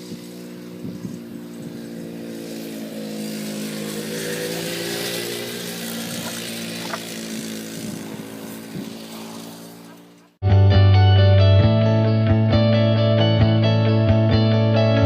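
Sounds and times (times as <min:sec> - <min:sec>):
quad bike engine running: 0:00.0 - 0:10.4.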